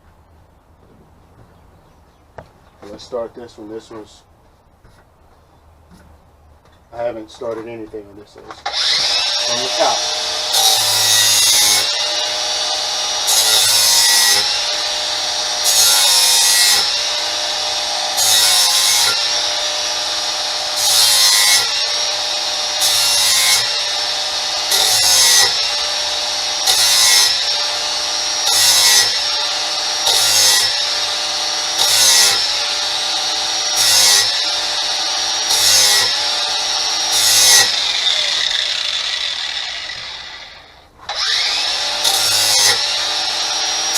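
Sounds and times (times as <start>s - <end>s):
power tool motor whine: 8.7s - 20.7s, 21.5s - 43.9s
grinding metal blade: 8.7s - 43.9s.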